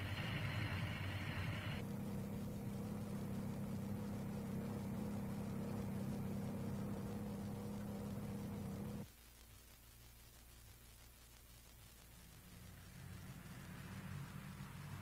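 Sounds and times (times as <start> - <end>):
car engine rushing: 0.0 - 9.0
steady low hum: 0.0 - 15.0.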